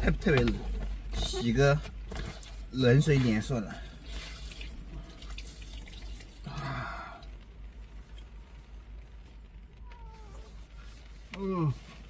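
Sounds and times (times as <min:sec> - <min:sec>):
water splashing and dripping: 0:04.0 - 0:07.4.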